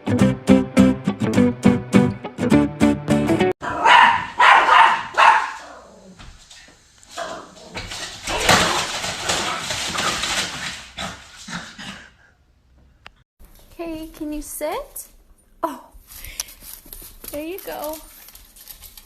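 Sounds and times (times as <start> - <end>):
plucked-string background music: 0.0 - 3.5
dog barking: 3.6 - 5.9.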